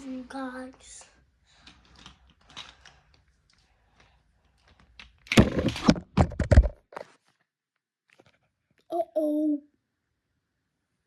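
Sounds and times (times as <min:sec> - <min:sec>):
toy truck clattering and tumbling: 0:01.5 - 0:03.6, 0:04.5 - 0:06.8.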